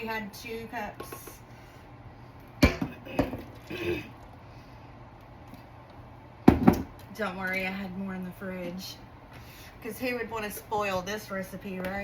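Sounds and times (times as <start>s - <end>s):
containers knocking on countertop: 6.4s - 6.9s.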